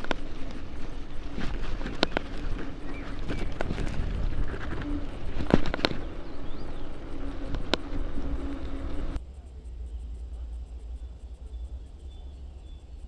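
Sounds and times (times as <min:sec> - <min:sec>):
wind and tyres rushing: 0:00.0 - 0:09.2
bicycle rattling over bumps: 0:00.0 - 0:09.3.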